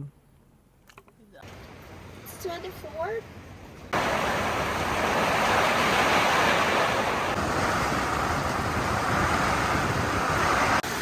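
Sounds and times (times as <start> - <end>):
strong wind: 1.5 - 11.0
rain: 3.9 - 11.0.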